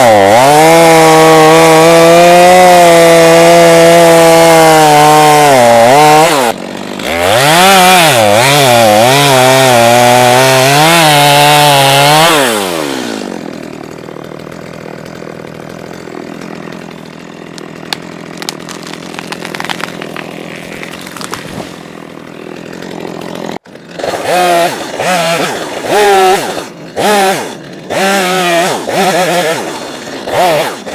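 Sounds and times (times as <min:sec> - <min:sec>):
wood cracking and snapping: 0:00.0 - 0:24.0
chainsaw cutting wood: 0:00.0 - 0:30.9.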